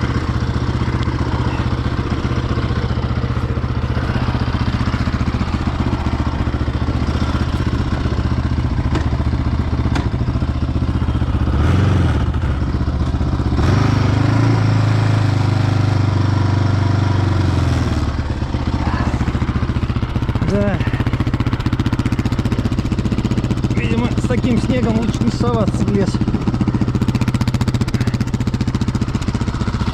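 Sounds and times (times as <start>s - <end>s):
quad bike engine revving: 0.0s - 29.9s.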